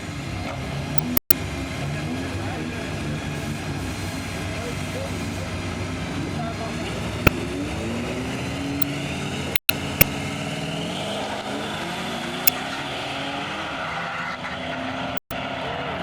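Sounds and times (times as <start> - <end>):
sharp clicks: 1.0 - 1.3, 9.6 - 10.2.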